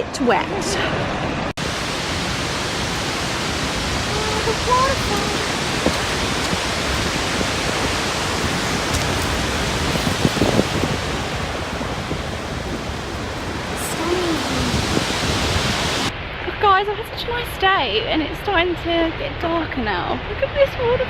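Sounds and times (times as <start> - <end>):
waterfall rushing: 1.6 - 16.1.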